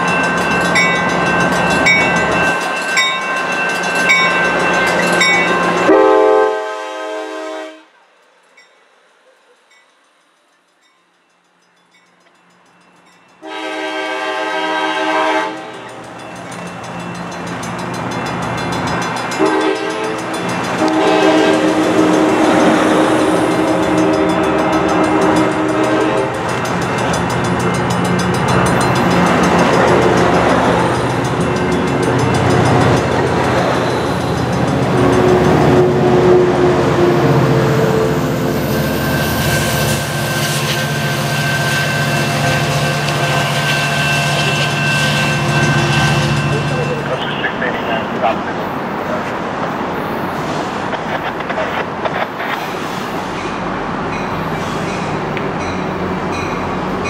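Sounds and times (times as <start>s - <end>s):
diesel locomotive drone: 0.0s - 57.0s
train horn blowing: 5.6s - 8.0s, 13.4s - 16.0s, 19.3s - 26.6s, 34.9s - 46.7s
train wheels rumbling and clattering: 9.7s - 57.0s.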